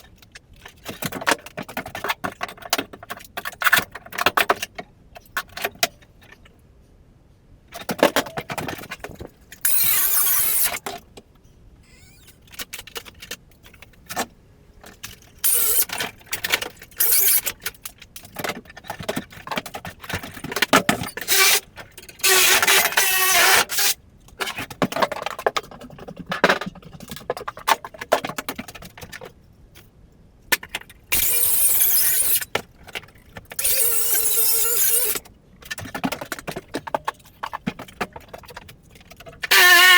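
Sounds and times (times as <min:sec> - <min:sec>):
scraping or cutting noise: 0:09.6 - 0:10.9, 0:15.4 - 0:16.0, 0:31.1 - 0:32.5, 0:33.6 - 0:35.2.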